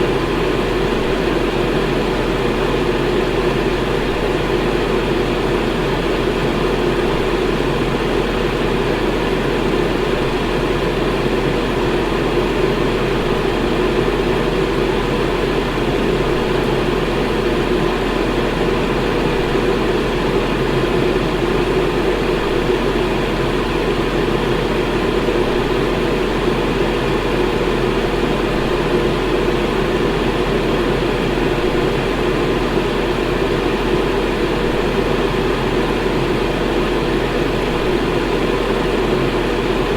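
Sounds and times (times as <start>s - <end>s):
electric fan running: 0.0s - 39.9s.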